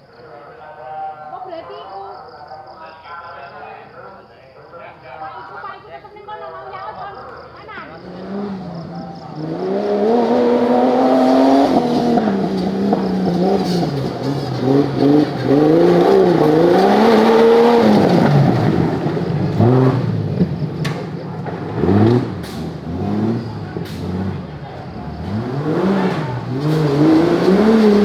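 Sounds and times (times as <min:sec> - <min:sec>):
off-road engine revving: 0:07.4 - 0:28.0.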